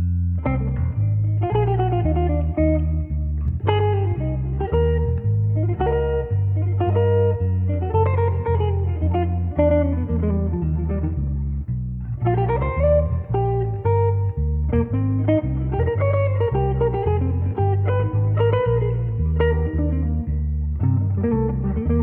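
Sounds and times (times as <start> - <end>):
guitar with bass line: 0.0 - 22.0.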